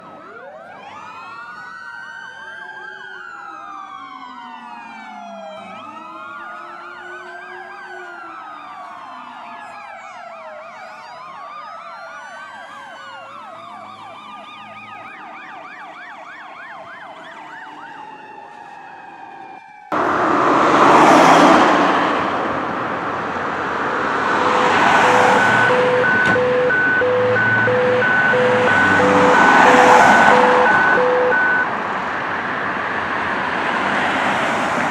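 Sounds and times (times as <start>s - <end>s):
emergency sirens wailing: 0.0s - 34.9s
heavy vehicle noise: 19.9s - 34.9s.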